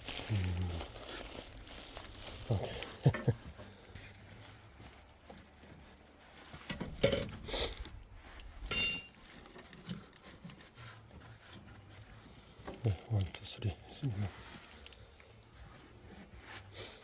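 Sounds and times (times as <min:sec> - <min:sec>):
handling noises: 0:00.0 - 0:17.0
metallic clinks and knocks: 0:06.7 - 0:07.4, 0:08.6 - 0:09.9.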